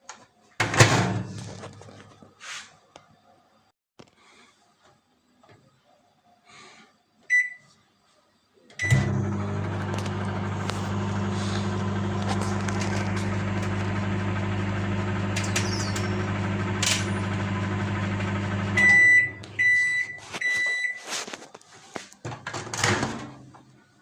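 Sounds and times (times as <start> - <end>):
microwave beeps: 7.3 - 7.7, 8.8 - 10.5, 13.9 - 21.0
microwave oven humming: 8.7 - 20.3.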